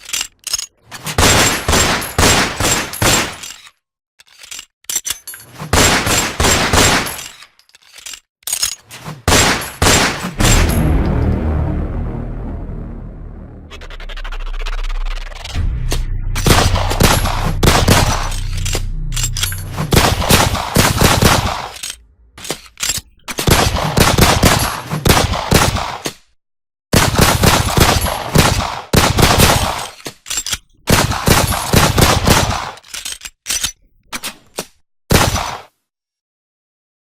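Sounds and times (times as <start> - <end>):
machine-gun fire bursts: 5.8 - 7.2, 19.9 - 21.8, 23.5 - 26.0.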